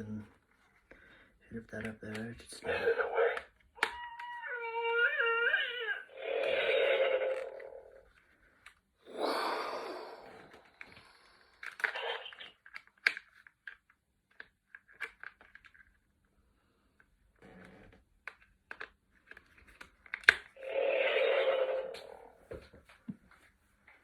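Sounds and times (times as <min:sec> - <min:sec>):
toy speaker cooing: 0:02.6 - 0:08.0, 0:11.6 - 0:12.6, 0:20.6 - 0:22.4
hissing sound effects: 0:09.1 - 0:11.3
plastic clicks and taps: 0:18.2 - 0:20.5.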